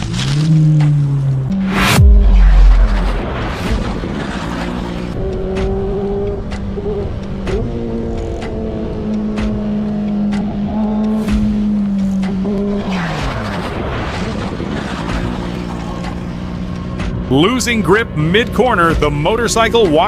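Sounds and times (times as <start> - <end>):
rushing noise: 1.5 - 5.2
motorcycle engine running: 5.2 - 12.9.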